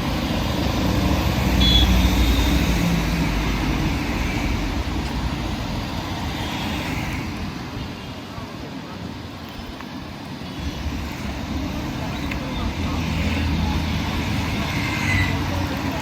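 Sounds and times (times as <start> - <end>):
vehicle passing close by: 0.0 - 7.7
street traffic: 0.0 - 16.0.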